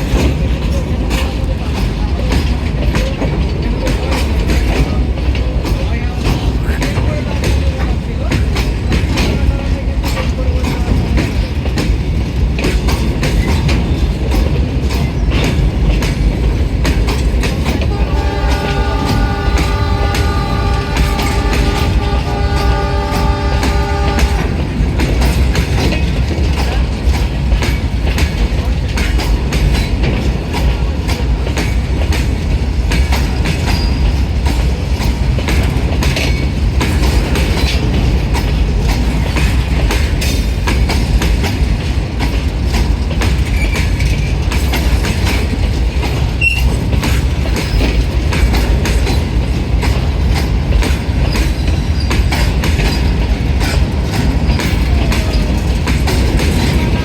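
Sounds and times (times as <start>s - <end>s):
train rumbling along track: 0.0s - 57.0s
wheels clicking over rail joints: 0.0s - 57.0s.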